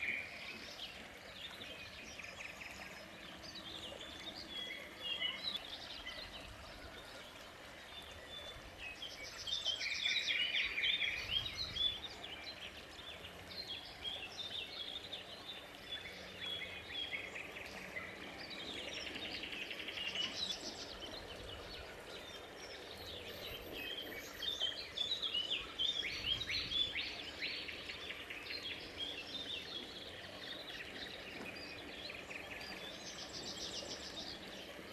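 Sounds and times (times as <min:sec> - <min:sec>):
small birds chirping and singing: 0:00.0 - 0:34.9.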